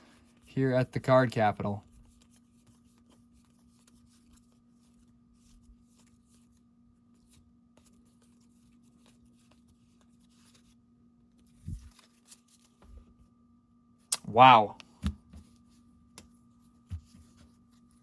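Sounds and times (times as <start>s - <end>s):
trading cards rustling: 7.3s - 12.9s
steady low hum: 11.3s - 12.1s.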